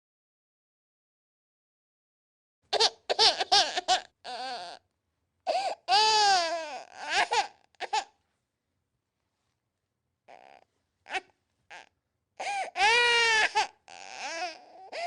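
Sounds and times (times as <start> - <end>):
infant crying: 2.8 - 4.8, 5.4 - 8.2, 10.3 - 15.0.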